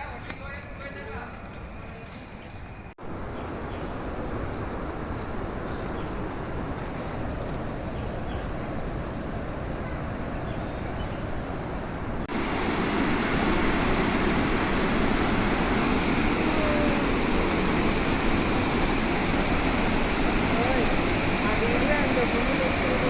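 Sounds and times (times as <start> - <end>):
waterfall rushing: 12.2 - 23.0.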